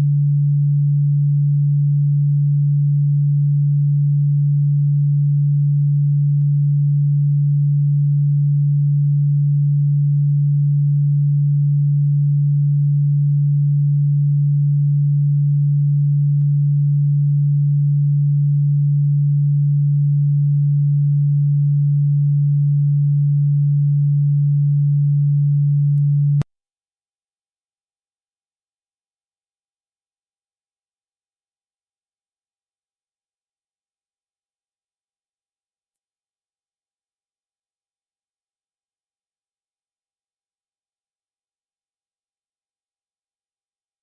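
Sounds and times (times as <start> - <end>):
low electronic tone: 0.0 - 26.5
click: 5.9 - 6.6, 15.9 - 16.6, 25.7 - 26.5, 35.9 - 36.1.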